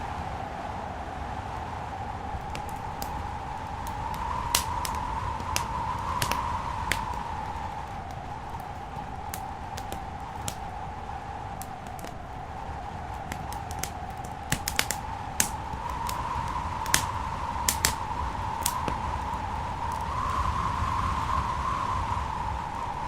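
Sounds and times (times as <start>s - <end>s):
whistling drone: 0.0s - 23.0s
wood fire crackling: 0.0s - 23.0s
sharp pops: 2.4s - 10.8s, 13.1s - 19.1s.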